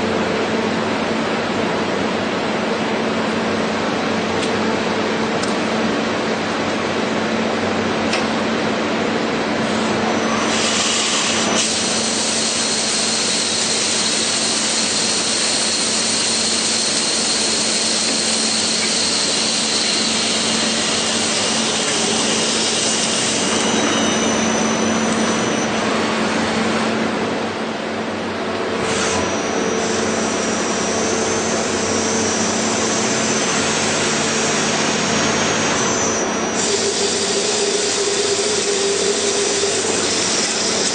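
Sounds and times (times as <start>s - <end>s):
high whine: 0.0s - 40.9s
cnc machine cutting: 9.6s - 40.9s.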